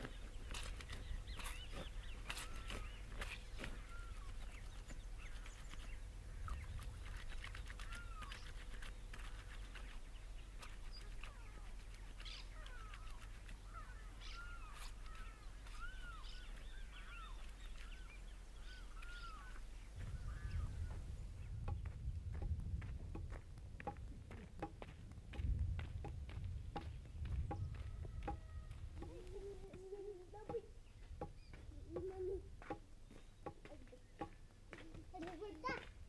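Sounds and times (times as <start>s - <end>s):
birds chirping: 0.0s - 22.5s, 26.3s - 35.9s
steady low rumble: 19.9s - 27.5s.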